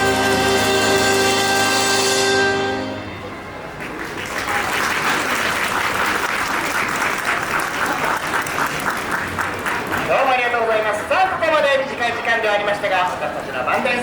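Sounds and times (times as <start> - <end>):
live band music: 0.0 - 3.9
audience applauding: 3.8 - 10.3.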